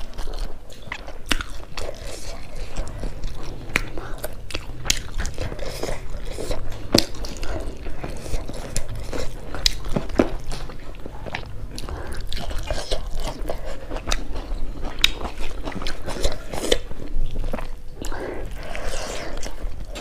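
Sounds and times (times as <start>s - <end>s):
wet chewing and mouth sounds: 0.0s - 20.0s.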